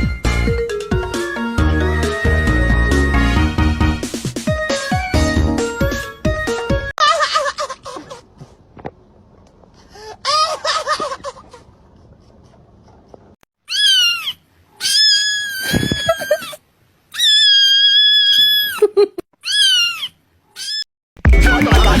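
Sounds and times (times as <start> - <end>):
cat meowing: 13.7 - 18.8, 19.4 - 20.9.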